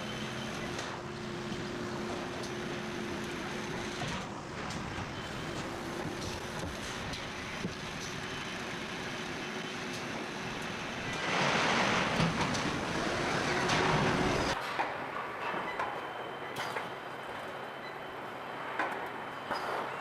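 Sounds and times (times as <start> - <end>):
factory machinery running: 0.0 - 20.0.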